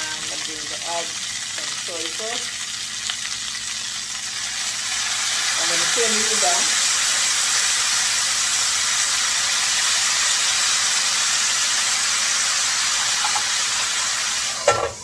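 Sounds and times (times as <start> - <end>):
chicken sizzling in a skillet: 0.0 - 15.0
metal lid clanking: 13.1 - 13.5, 14.6 - 15.0.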